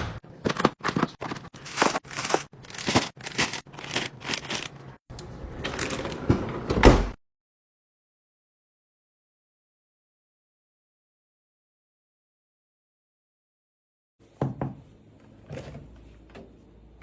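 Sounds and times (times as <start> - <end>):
food packaging crinkling: 0.4 - 5.0.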